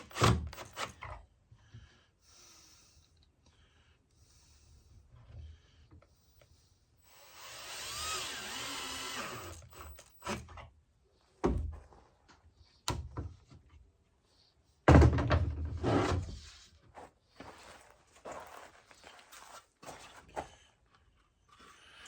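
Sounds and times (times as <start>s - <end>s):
drill driving screw into wood: 0.0s - 1.0s, 7.1s - 10.6s.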